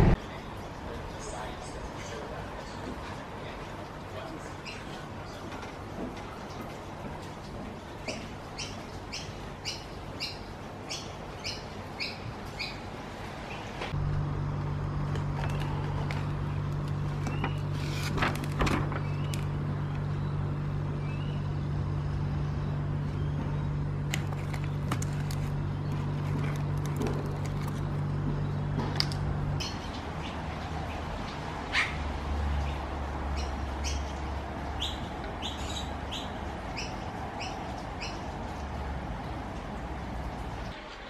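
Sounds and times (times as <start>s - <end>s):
steady low hum: 0.0s - 5.3s, 8.4s - 41.0s
bird chirping: 8.0s - 12.9s, 19.0s - 23.8s, 32.6s - 38.6s
paper box crackling and rustling: 15.2s - 19.6s, 24.1s - 28.2s
rain hissing: 29.3s - 41.0s.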